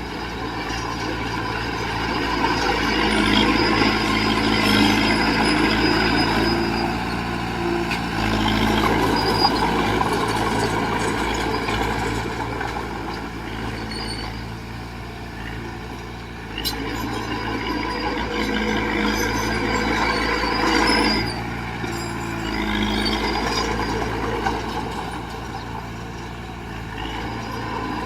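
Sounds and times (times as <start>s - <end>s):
heavy diesel engine under load: 0.0s - 28.0s.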